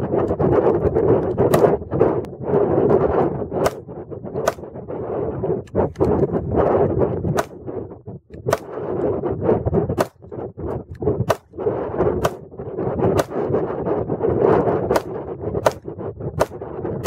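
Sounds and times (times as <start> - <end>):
pistol shots: 3.6 - 3.8, 8.4 - 8.8, 12.2 - 12.4, 14.9 - 16.6.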